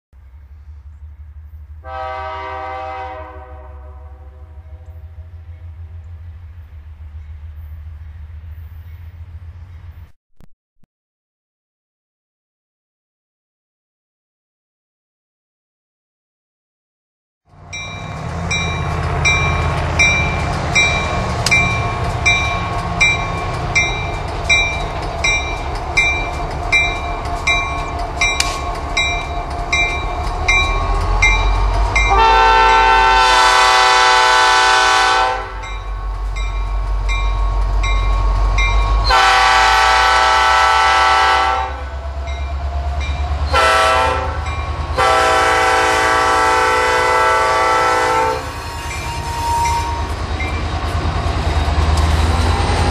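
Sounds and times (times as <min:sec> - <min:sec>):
diesel locomotive engine rumble: 0:00.2 - 0:10.2, 0:17.5 - 0:52.9
locomotive air horn: 0:01.8 - 0:05.3, 0:32.0 - 0:35.8, 0:39.0 - 0:42.1, 0:43.5 - 0:50.1
train wheels clacking over rail joints: 0:18.4 - 0:32.2.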